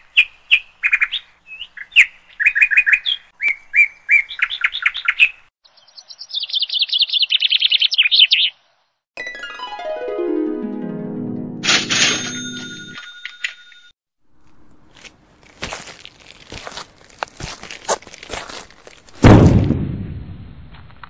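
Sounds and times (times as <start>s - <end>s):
songbird singing: 0.0s - 8.6s
music with falling run of notes: 9.2s - 13.0s.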